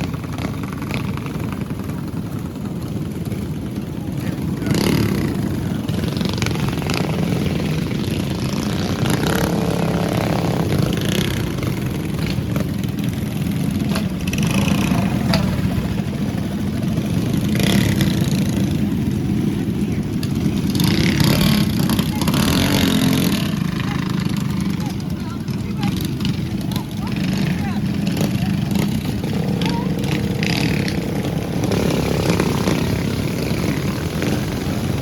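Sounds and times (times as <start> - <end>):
mini bike engines droning: 0.0 - 35.0.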